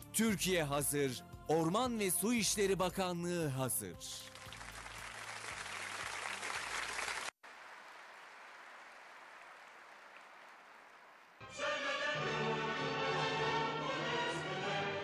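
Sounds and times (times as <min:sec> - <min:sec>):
audience applauding: 0:04.2 - 0:11.4.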